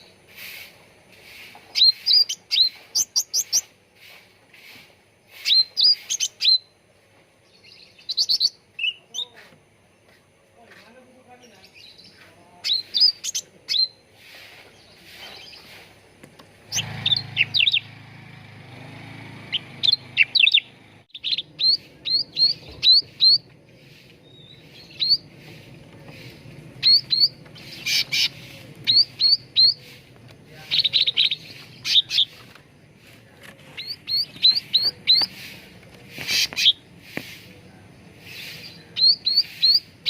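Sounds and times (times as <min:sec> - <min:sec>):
songbird whistling: 0:01.7 - 0:03.7, 0:05.4 - 0:06.8, 0:07.6 - 0:09.3, 0:12.6 - 0:14.1, 0:16.7 - 0:17.9, 0:19.5 - 0:25.4, 0:26.8 - 0:30.0, 0:30.7 - 0:32.4, 0:33.8 - 0:35.5, 0:38.3 - 0:40.0
bird chattering: 0:01.7 - 0:06.7, 0:12.6 - 0:14.4, 0:16.6 - 0:17.9, 0:19.5 - 0:32.6, 0:33.7 - 0:37.5, 0:38.2 - 0:40.0.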